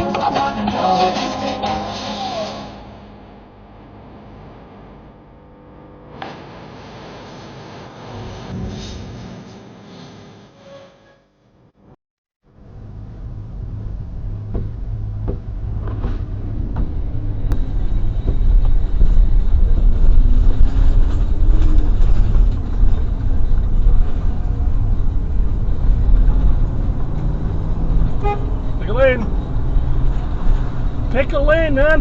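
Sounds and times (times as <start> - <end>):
vehicle engine and road rumble: 12.4 - 32.0.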